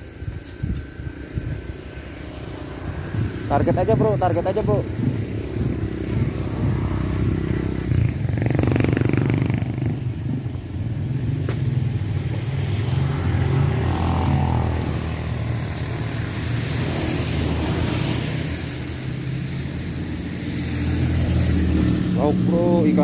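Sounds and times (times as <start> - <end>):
small engine running: 2.2 - 11.3.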